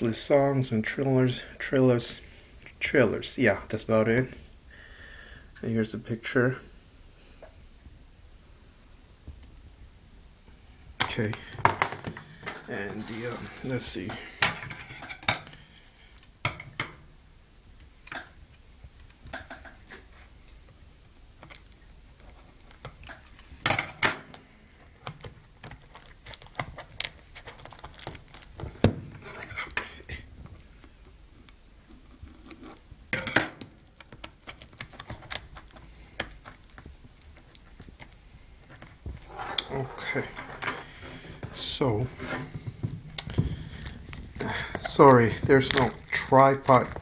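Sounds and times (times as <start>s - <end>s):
plastic packaging clatter: 25.1s - 29.8s, 42.8s - 47.0s.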